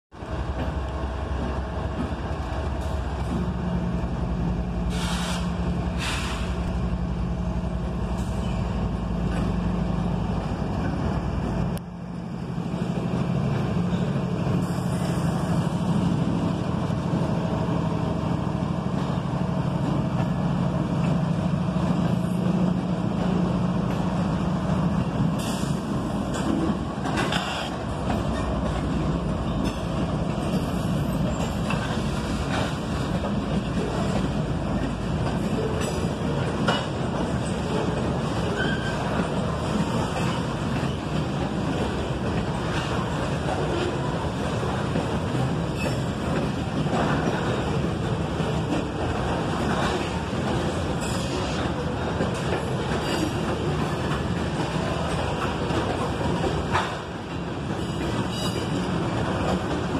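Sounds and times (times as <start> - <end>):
diesel locomotive rumble: 0.1 - 59.9
air hisses: 4.9 - 6.6.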